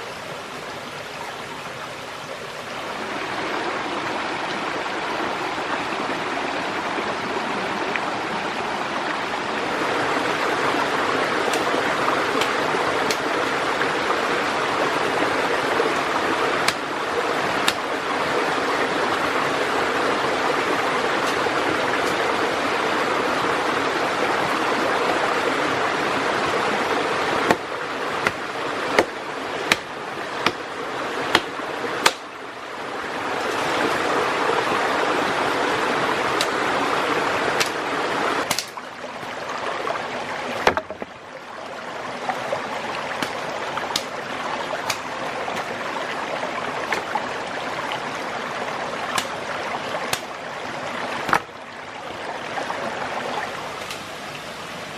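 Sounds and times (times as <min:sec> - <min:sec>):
running water rushing: 0:00.0 - 0:54.9
sharp knocks: 0:40.6 - 0:41.1.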